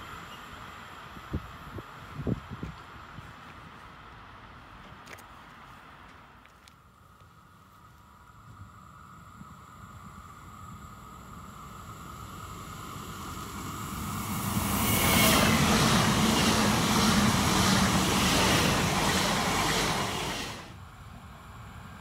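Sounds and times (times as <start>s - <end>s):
electric train passing: 0.0s - 4.8s, 6.9s - 22.0s.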